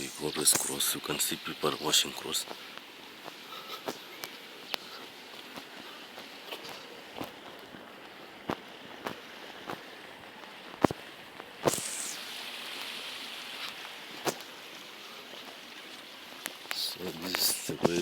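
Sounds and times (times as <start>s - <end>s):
steady hiss: 0.0s - 18.0s
footsteps on stony ground: 2.4s - 12.1s, 13.6s - 18.0s.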